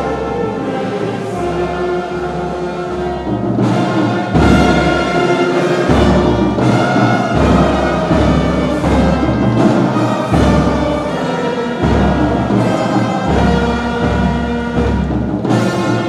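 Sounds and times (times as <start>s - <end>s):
orchestral music with brass and strings: 0.0s - 16.0s
low drum rolls: 3.2s - 16.0s.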